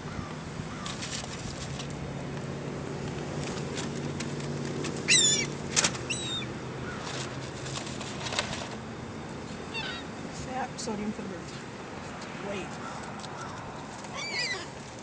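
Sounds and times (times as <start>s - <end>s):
seagulls calling: 5.0s - 7.2s, 9.7s - 10.2s, 12.8s - 14.8s.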